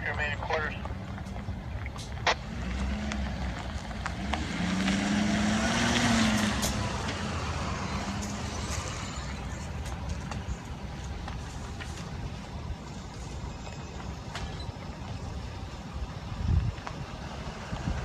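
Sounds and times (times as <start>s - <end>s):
heavy truck driving past: 0.8s - 18.0s.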